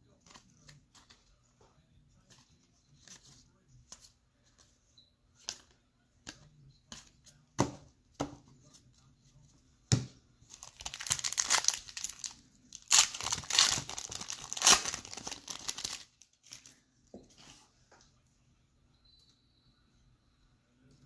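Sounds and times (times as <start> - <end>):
wrapper tearing and crinkling: 10.6 - 16.7.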